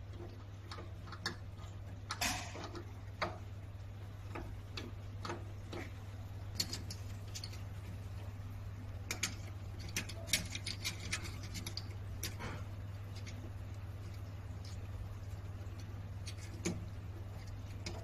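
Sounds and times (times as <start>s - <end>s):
steady low hum: 0.0s - 18.0s
small tools clicking and tapping: 4.3s - 7.9s, 9.0s - 18.0s.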